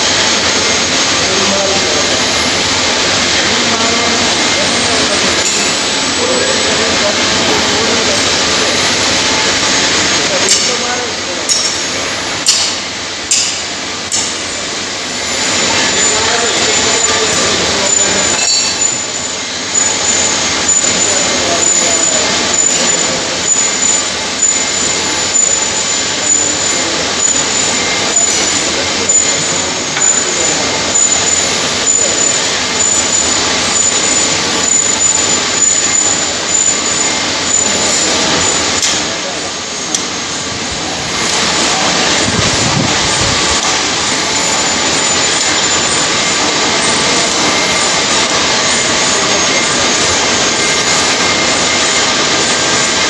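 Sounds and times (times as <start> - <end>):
lathe running: 0.0 - 53.0.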